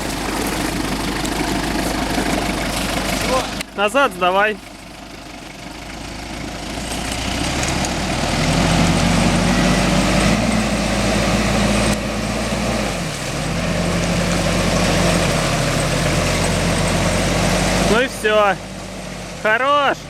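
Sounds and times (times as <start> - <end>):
suv engine under load: 0.0 - 20.0.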